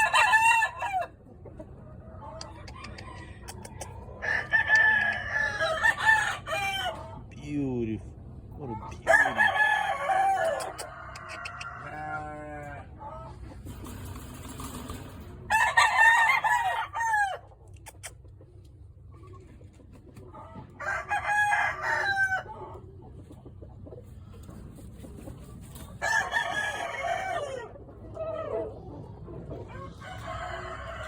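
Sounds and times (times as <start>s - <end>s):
roosters crowing: 0.0s - 1.3s, 2.2s - 7.2s, 8.8s - 13.3s, 14.6s - 17.6s, 20.4s - 22.8s, 25.9s - 28.8s, 29.6s - 31.0s
rattling cluck: 1.2s - 4.2s, 13.0s - 15.5s, 22.5s - 26.7s.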